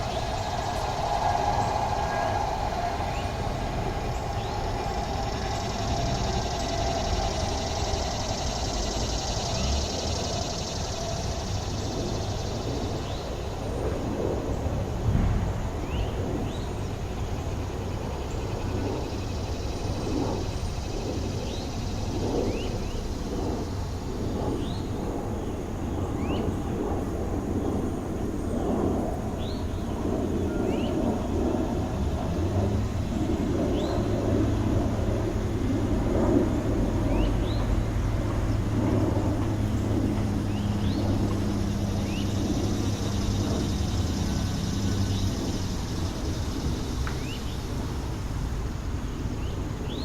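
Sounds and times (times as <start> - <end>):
quick rising chirps: 0.0 - 12.4
high hiss: 0.0 - 24.9, 30.6 - 50.0
road traffic rumble: 0.0 - 50.0
wind: 0.0 - 50.0.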